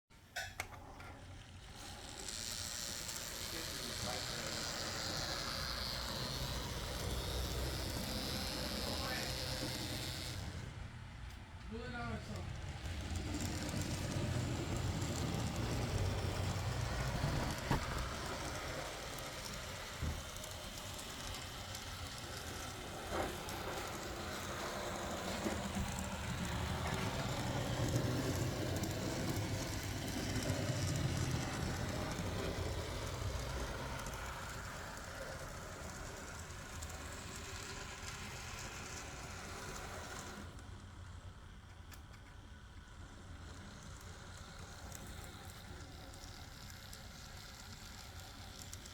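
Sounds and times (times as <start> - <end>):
model train rattling on rails: 1.1 - 48.9.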